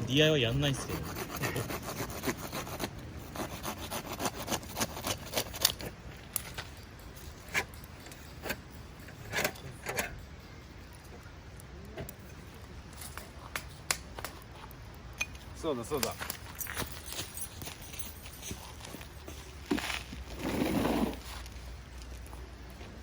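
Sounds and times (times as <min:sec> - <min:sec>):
rasp strokes on wood: 0:00.3 - 0:05.9.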